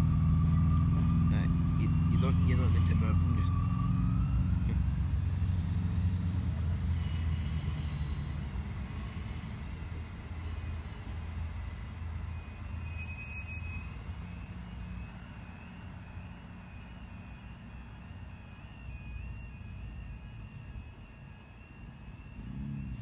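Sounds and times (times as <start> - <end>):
faint wavering high tone: 0.0 - 6.1, 12.2 - 23.0
diesel engine drone: 0.0 - 23.0
high-pitched wheel squeal: 1.7 - 4.6, 5.6 - 11.4, 12.2 - 23.0.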